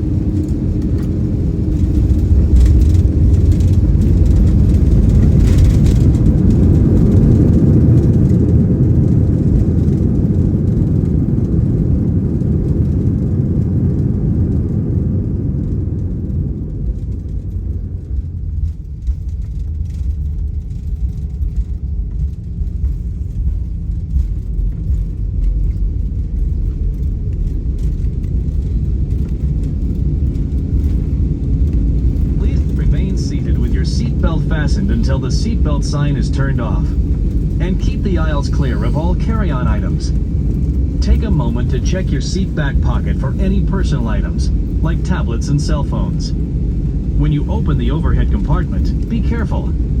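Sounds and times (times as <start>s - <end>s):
jet engines and runway rumble: 0.0s - 50.0s
faint falling whine: 29.9s - 50.0s.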